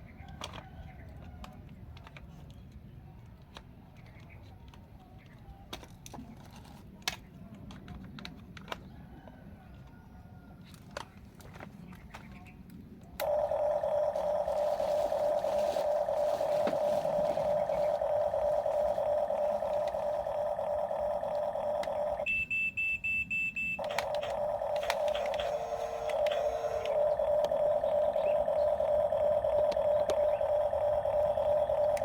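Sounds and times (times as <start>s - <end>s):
toy electric motor whining: 13.2s - 22.3s, 23.8s - 32.0s.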